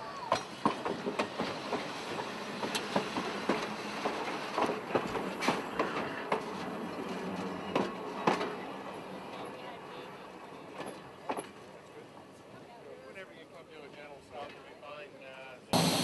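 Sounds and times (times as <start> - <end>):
train cars rumbling on track: 0.0 - 12.6.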